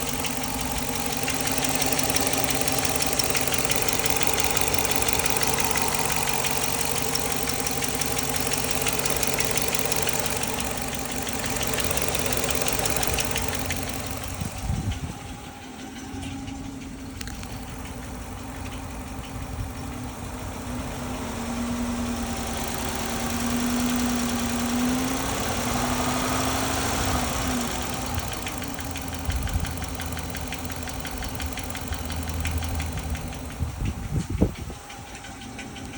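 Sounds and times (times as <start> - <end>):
car engine idling: 0.0 - 35.9
fast engine ticking: 0.0 - 35.9.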